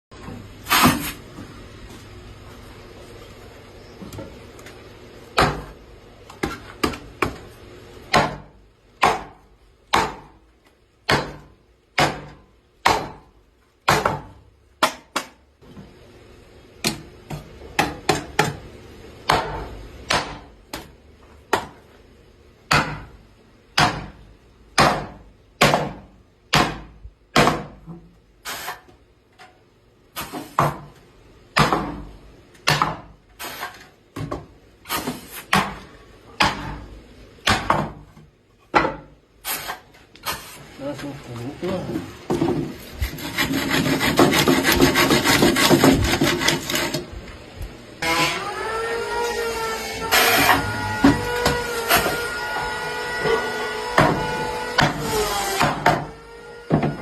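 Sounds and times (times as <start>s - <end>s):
hammer striking wood: 5.4s - 5.8s, 8.1s - 10.4s, 11.0s - 15.4s, 16.8s - 18.6s, 19.2s - 20.8s, 22.7s - 23.1s, 23.8s - 24.2s, 24.8s - 27.9s, 31.6s - 32.0s, 32.6s - 33.1s, 36.4s - 36.8s, 37.4s - 38.1s, 53.2s - 55.0s, 55.6s - 56.1s.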